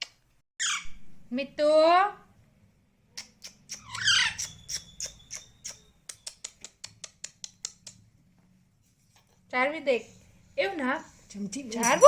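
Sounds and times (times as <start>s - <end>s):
harsh squawk: 3.2s - 5.8s.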